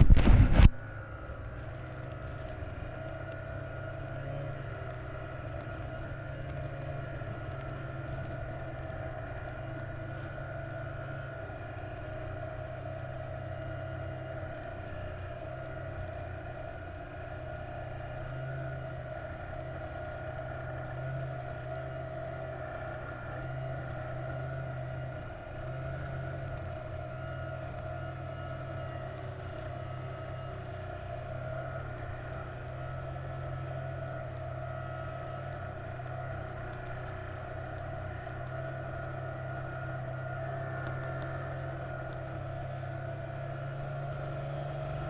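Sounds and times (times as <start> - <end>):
faint clicks: 0.0 - 45.0
vehicle engine running: 0.0 - 45.0.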